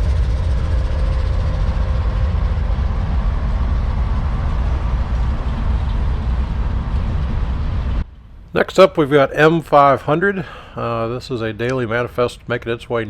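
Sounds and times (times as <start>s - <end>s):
freight train rumbling on track: 0.0s - 8.1s.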